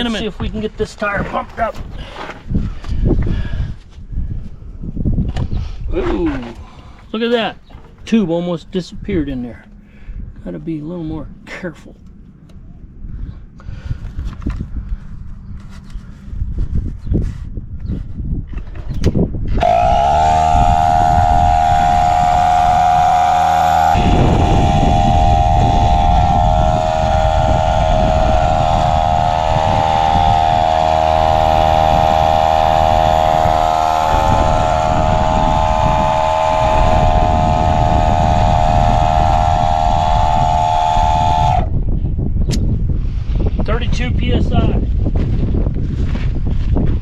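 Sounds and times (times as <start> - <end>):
electric tire pump buzzing: 19.6 - 41.7.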